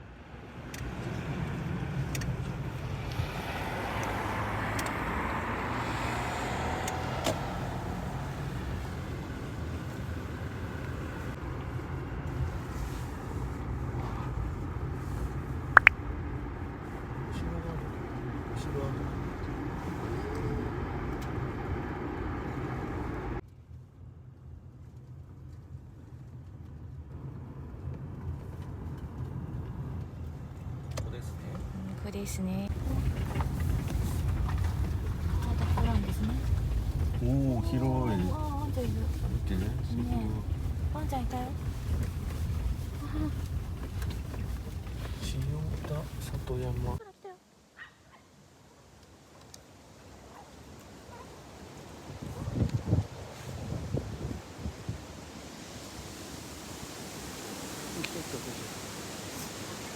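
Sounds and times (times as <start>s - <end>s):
car road noise and engine rumble: 0.0s - 59.9s
faint clicks: 4.8s - 5.0s.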